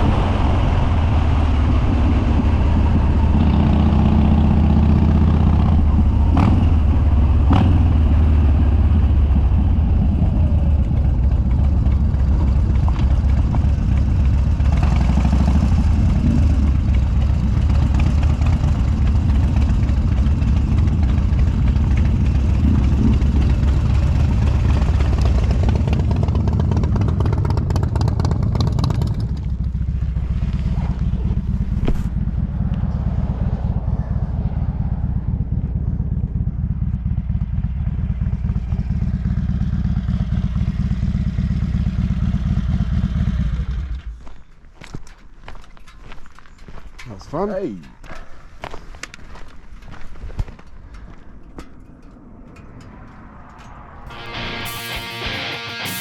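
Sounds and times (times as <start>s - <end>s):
wind noise: 0.0s - 14.5s
motorcycle engine running loud: 0.0s - 44.1s, 54.1s - 56.0s.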